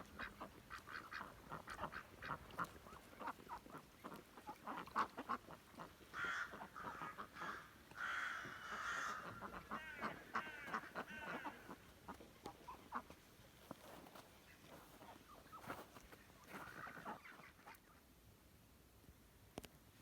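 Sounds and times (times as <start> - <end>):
poultry calling: 0.1 - 13.1.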